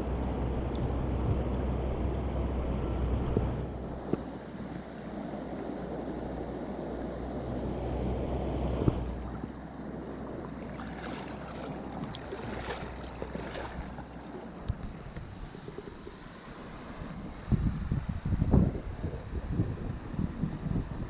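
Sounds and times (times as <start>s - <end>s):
sharp water sounds: 4.0s - 21.0s
mountain stream rushing: 10.2s - 17.5s.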